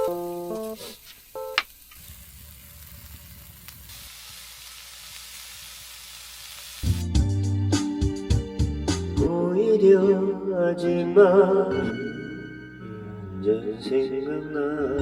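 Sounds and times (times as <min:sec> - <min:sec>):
music: 0:00.0 - 0:00.8, 0:06.8 - 0:15.0
food sizzling in a pan: 0:00.0 - 0:07.2.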